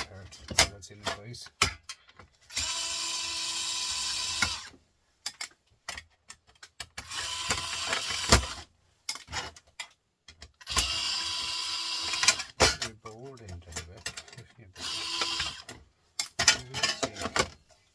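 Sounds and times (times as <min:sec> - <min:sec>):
power screwdriver running: 0:02.5 - 0:04.7, 0:07.0 - 0:08.6, 0:10.7 - 0:12.6, 0:14.8 - 0:15.7.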